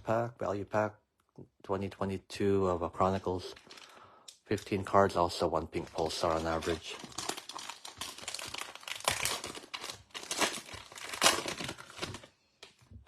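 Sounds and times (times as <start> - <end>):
card pack wrapper crinkling: 3.0 - 4.9, 5.8 - 12.8.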